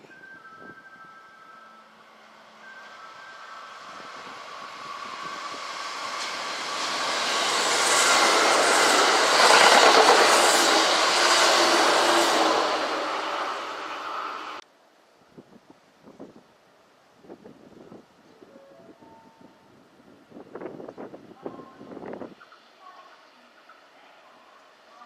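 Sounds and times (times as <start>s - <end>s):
electric train running: 1.2s - 14.6s.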